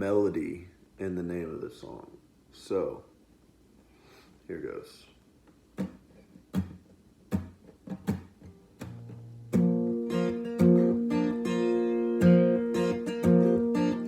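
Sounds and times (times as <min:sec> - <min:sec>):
acoustic guitar strumming: 0:05.8 - 0:14.0.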